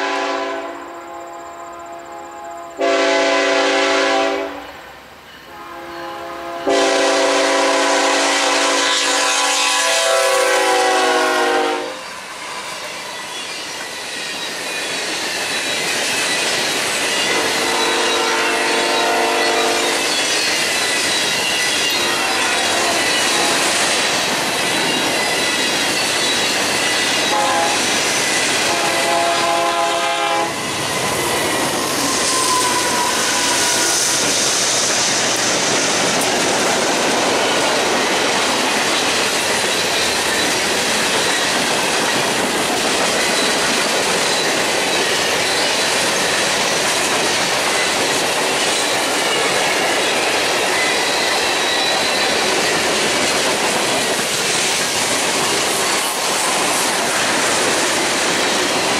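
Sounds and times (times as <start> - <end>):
train wheels on rails: 0.0 - 1.0, 2.3 - 58.9
locomotive air horn: 0.0 - 4.7, 5.5 - 12.0, 17.3 - 20.2, 22.0 - 23.7, 27.3 - 27.9, 28.6 - 30.6.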